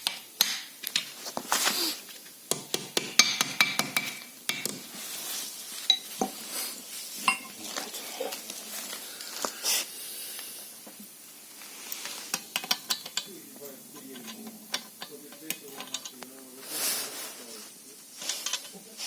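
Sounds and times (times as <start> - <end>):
steel parts clicking and clinking: 12.3 - 13.4, 14.0 - 16.3, 18.2 - 18.8.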